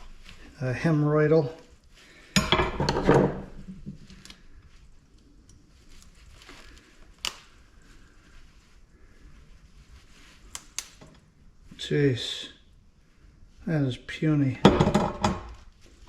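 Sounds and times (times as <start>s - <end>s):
light clicks of handled parts: 5.1s - 7.6s, 10.4s - 11.2s.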